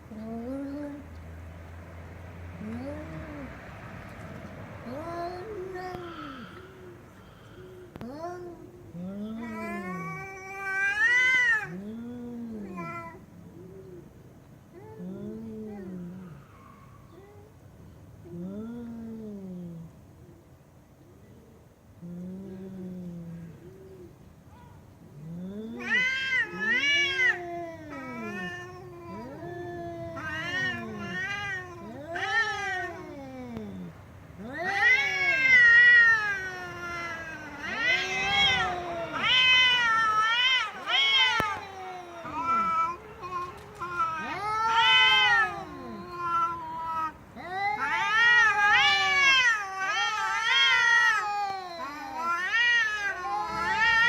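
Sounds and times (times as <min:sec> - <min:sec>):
cat meowing: 0:25.8 - 0:54.0.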